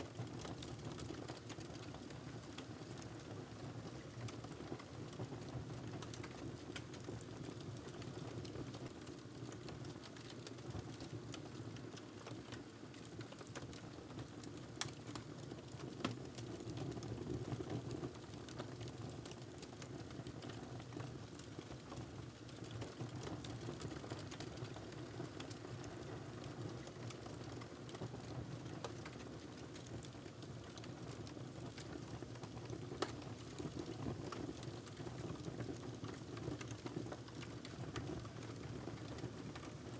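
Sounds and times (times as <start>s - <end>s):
wood fire crackling and popping: 0.1s - 39.9s.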